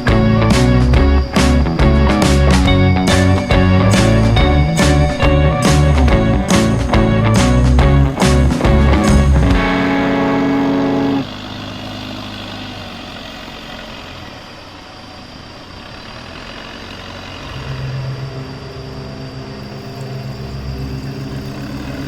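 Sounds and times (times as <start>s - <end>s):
steady background rush: 0.0s - 11.2s, 17.4s - 22.0s
held musical chord: 0.0s - 11.3s, 17.5s - 22.0s
engine humming: 0.0s - 22.0s.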